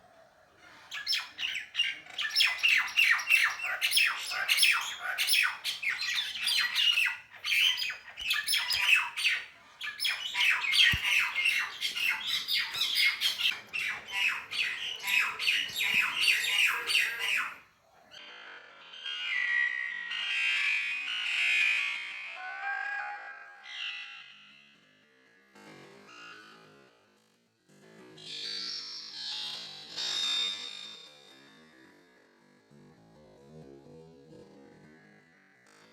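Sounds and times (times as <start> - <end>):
birds squawking harshly: 0.8 - 17.6.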